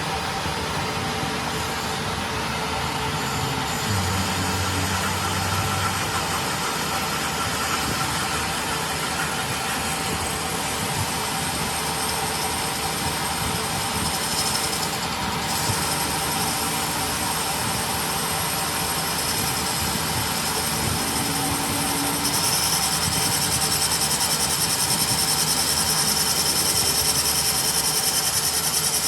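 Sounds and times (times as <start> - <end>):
machine humming and hissing: 0.0 - 29.0
deeper hum: 2.2 - 7.2.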